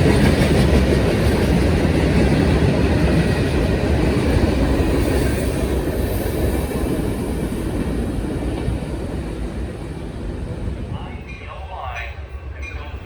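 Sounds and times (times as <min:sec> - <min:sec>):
train wheels clattering on rails: 0:00.0 - 0:13.0.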